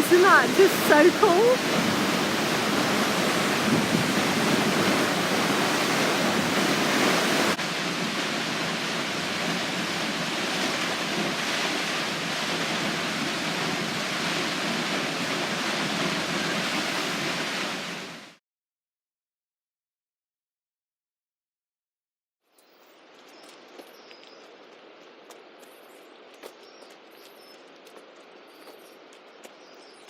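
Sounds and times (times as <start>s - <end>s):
waterfall rushing: 0.0s - 18.3s.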